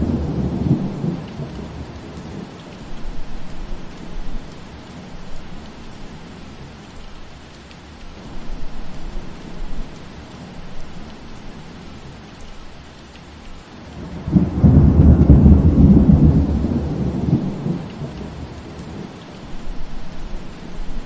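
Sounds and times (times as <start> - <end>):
thunder rumbling: 0.0 - 5.3, 14.0 - 21.0
steady rain: 0.0 - 21.0.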